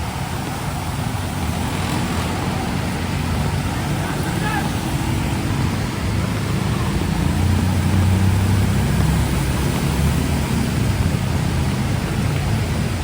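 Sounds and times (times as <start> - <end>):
heavy rain on street: 0.0 - 13.0
vehicle engine passing: 0.0 - 13.0.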